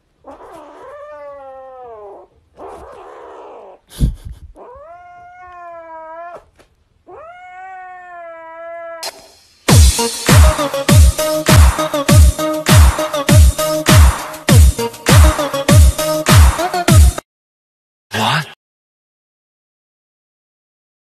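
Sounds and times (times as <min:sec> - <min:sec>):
kitten yowling: 0:00.2 - 0:03.8, 0:04.6 - 0:09.1.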